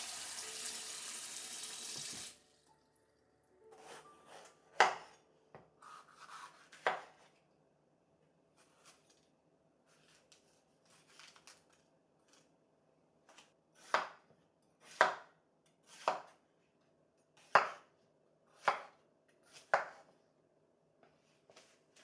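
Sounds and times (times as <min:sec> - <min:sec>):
knife chopping on cutting board: 0:03.7 - 0:05.2, 0:05.8 - 0:07.3, 0:13.8 - 0:14.2, 0:14.8 - 0:15.3, 0:15.9 - 0:16.4, 0:17.4 - 0:17.9, 0:18.6 - 0:20.1.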